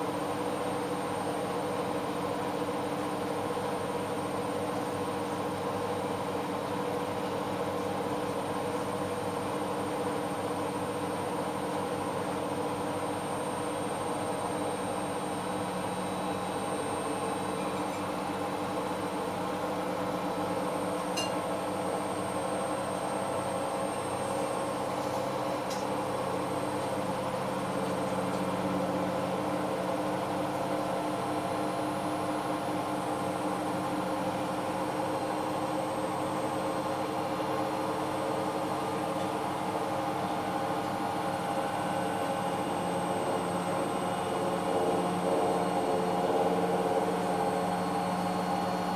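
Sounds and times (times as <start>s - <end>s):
washing machine motor hum: 3.4s - 48.9s.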